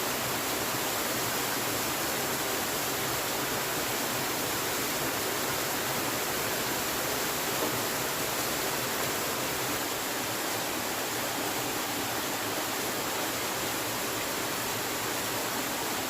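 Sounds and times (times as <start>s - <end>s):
water rushing: 0.0s - 16.0s.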